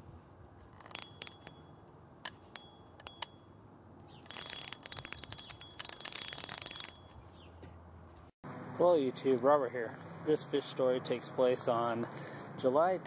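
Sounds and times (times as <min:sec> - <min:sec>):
fast ratchet-like clicking: 0:00.6 - 0:01.6, 0:04.2 - 0:07.1
metallic clicks with bell-like ring: 0:00.9 - 0:03.5, 0:04.3 - 0:07.1.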